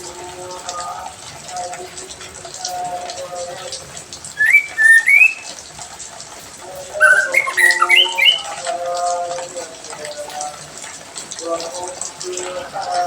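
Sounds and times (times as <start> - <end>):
songbird whistling and chirping: 4.4 - 5.5, 7.0 - 8.6.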